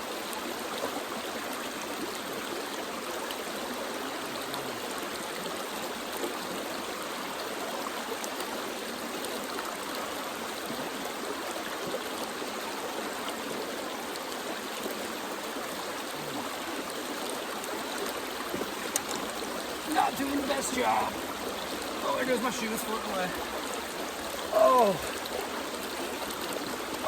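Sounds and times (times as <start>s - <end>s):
water flowing over rocks: 0.0s - 27.0s
faint clicks: 18.0s - 19.5s.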